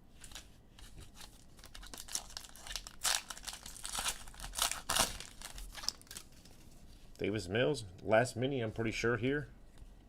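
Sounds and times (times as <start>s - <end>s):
plastic crinkling: 1.2s - 6.7s
trading cards rustling: 1.2s - 6.7s.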